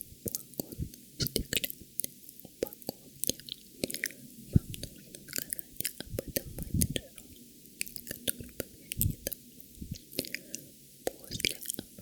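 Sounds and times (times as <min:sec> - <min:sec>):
wet mouth clicks and smacks: 0:00.3 - 0:01.7, 0:02.4 - 0:07.0, 0:07.8 - 0:10.5.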